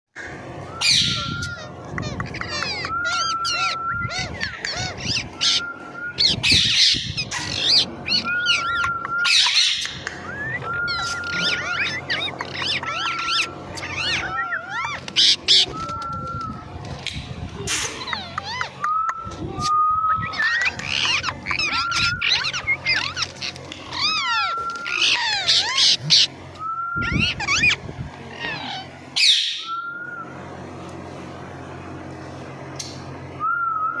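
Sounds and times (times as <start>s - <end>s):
steady low hum: 0.2s - 34.0s
rapid chirping and whistled calls: 0.6s - 16.6s, 17.9s - 30.2s
parrot squawking: 0.8s - 15.9s, 17.7s - 18.9s, 20.2s - 26.4s, 27.0s - 29.7s.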